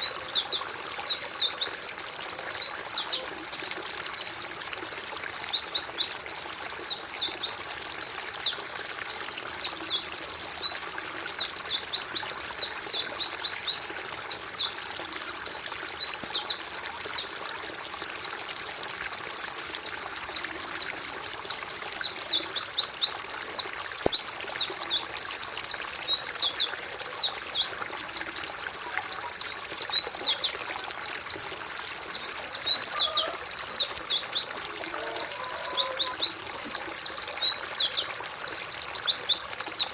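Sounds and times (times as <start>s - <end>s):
bird chattering song: 25.9s - 39.9s.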